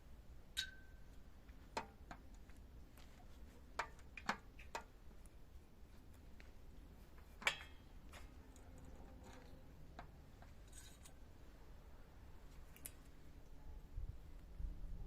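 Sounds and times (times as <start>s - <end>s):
light clicks and taps of tools: 0.6s - 11.2s, 12.5s - 13.2s
faint low hum: 2.3s - 15.0s.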